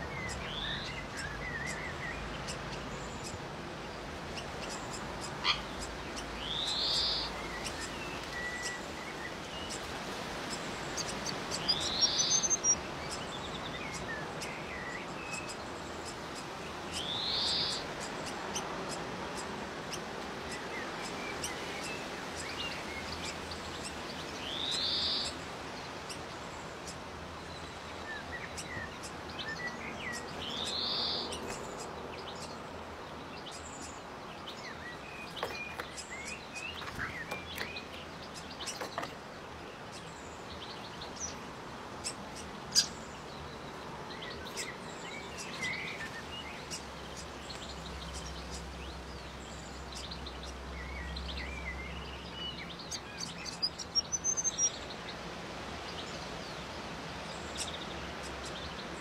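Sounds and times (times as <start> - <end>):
bird chirps and calls: 0.0 - 25.4, 26.1 - 55.2
steady outdoor hiss: 0.0 - 59.0.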